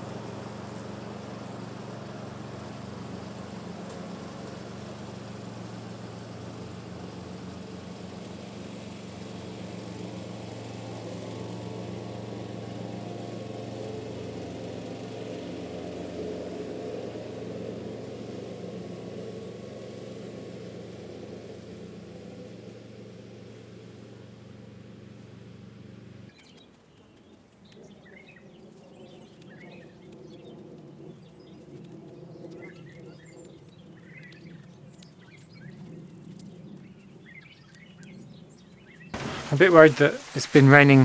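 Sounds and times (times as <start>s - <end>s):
lawn mower engine running: 0.0s - 19.2s, 39.2s - 41.0s.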